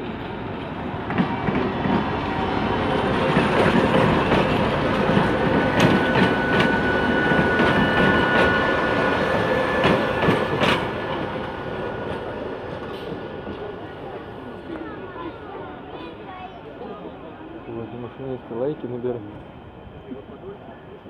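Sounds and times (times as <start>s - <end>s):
train wheels rumbling on rails: 0.0s - 16.5s
clacks over rail joints: 3.2s - 6.8s, 9.8s - 11.4s.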